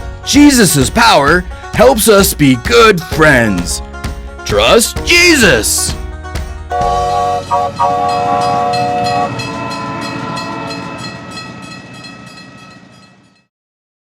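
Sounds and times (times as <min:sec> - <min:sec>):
rhythmic train chugging: 0:00.0 - 0:13.5
multi-note train whistle: 0:06.7 - 0:10.9.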